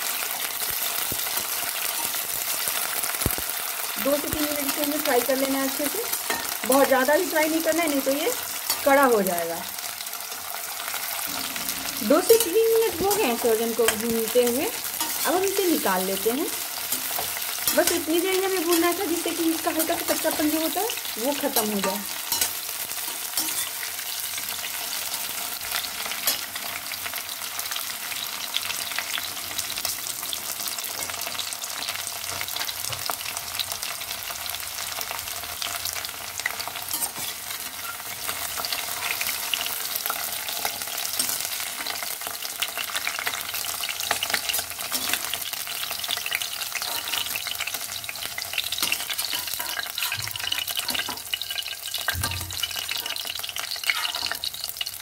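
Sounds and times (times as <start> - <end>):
food sizzling in hot oil: 0.0 - 55.0
spatula scraping a pan: 21.5 - 24.4, 48.6 - 51.5.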